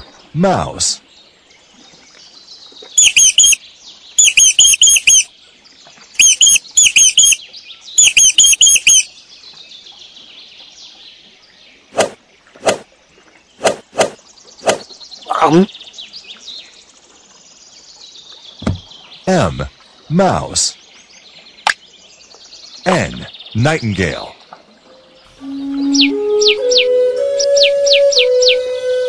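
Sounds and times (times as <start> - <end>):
mouse squeaking: 3.0 - 3.6, 4.2 - 5.3, 6.2 - 7.4, 8.0 - 9.1.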